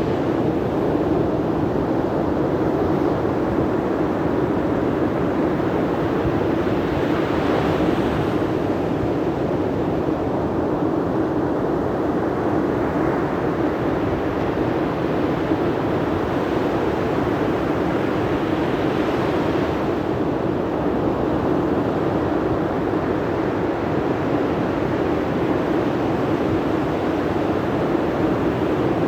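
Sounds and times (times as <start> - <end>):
wind: 0.0 - 29.0.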